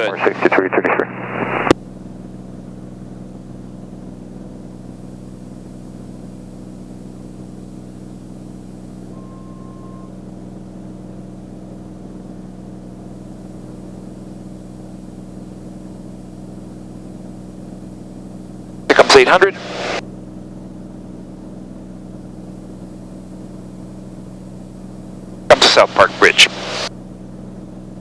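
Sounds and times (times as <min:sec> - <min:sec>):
propeller plane engine droning: 0:00.0 - 0:28.0
single beep: 0:09.1 - 0:10.1.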